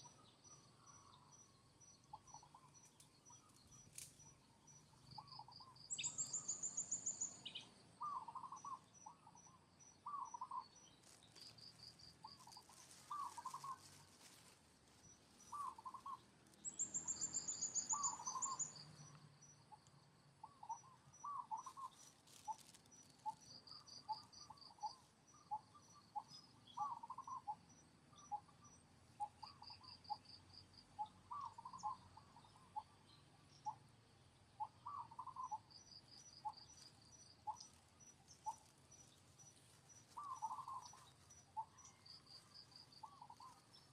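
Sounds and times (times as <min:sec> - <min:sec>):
insects chirping: 0:00.0 - 0:43.9
birds calling: 0:05.0 - 0:09.4, 0:10.0 - 0:14.4, 0:15.4 - 0:19.1, 0:20.4 - 0:25.0, 0:31.0 - 0:32.9, 0:34.6 - 0:43.9.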